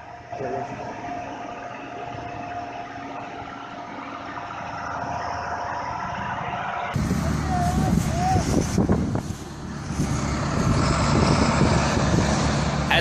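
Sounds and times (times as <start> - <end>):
mid-pitched whine: 0.0 - 10.0
truck engine running: 0.0 - 13.0.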